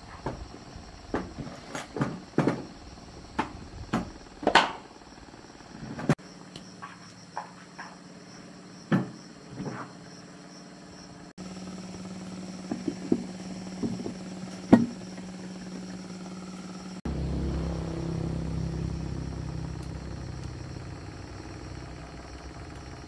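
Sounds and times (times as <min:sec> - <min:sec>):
steady low hum: 0:00.0 - 0:23.0
low engine rumble: 0:10.8 - 0:23.0.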